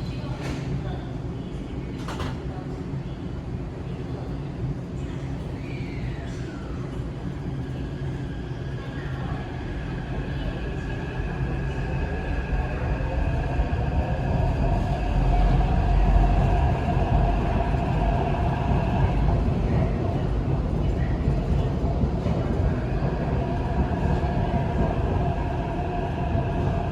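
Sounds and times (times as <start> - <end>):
train pulling out rumbling: 6.4 - 26.9.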